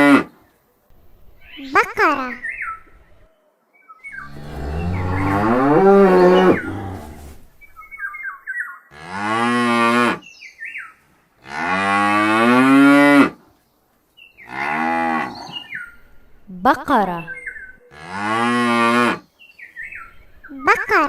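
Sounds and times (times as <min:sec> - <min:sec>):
cow mooing: 0:04.2 - 0:07.4.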